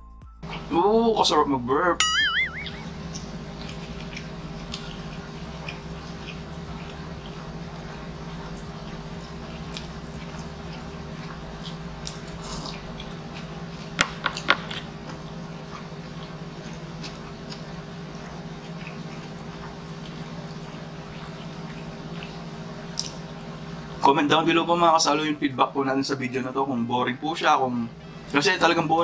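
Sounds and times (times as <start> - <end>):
air conditioner hum: 0.0 - 29.0
chewing and eating mouth sounds: 0.4 - 0.8, 2.3 - 24.0.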